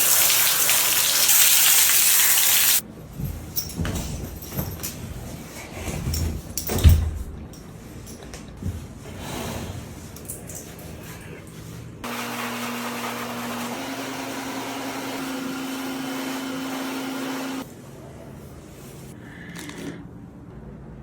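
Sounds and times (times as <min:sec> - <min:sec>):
water spraying from a hose: 0:00.0 - 0:02.8.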